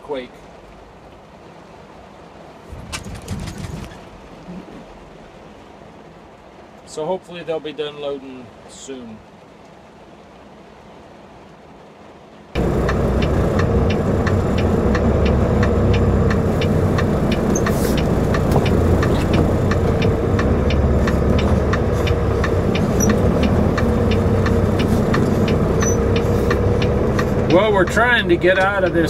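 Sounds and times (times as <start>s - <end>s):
light regular ticking: 12.6s - 29.0s
truck engine running: 12.6s - 29.0s.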